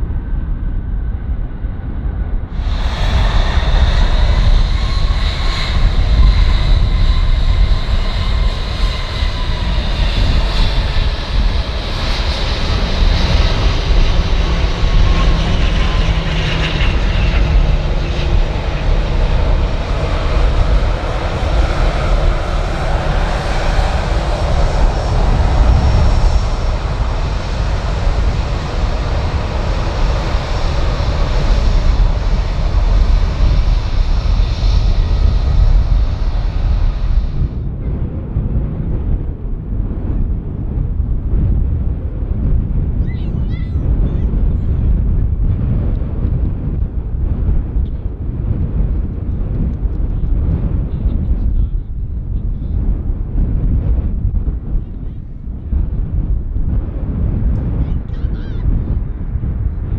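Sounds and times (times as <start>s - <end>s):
jet engines roaring: 0.1s - 59.9s
high whining engine tones: 2.5s - 37.6s.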